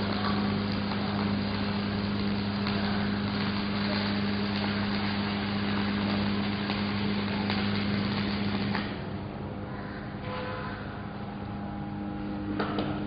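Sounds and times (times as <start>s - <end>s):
welding arc crackling and sizzling: 0.0s - 9.5s
low hum: 0.0s - 13.0s.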